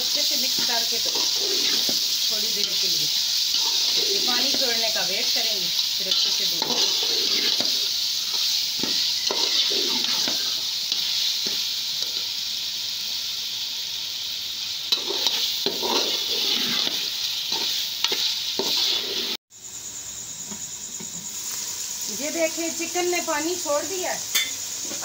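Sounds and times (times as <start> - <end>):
chicken sizzling in oil: 0.0 - 19.8, 20.6 - 25.0
spatula scraping a pot: 0.4 - 11.6, 14.9 - 19.4.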